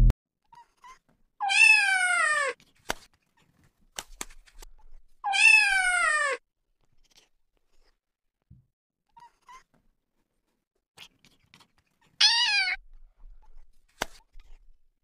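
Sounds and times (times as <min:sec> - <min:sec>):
kitten meowing: 0:01.4 - 0:02.6, 0:05.3 - 0:06.4, 0:12.2 - 0:12.8.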